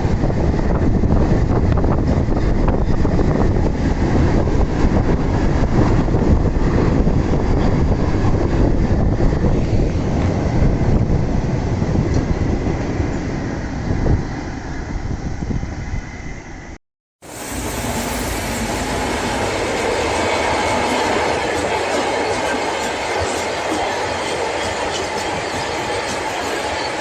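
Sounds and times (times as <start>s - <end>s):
freight train wagons rumbling: 17.2s - 27.0s.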